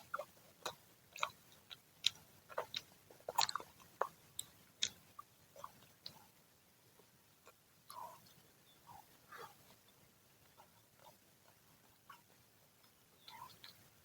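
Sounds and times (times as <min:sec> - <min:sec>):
person chewing crunchy food: 0:00.0 - 0:06.2.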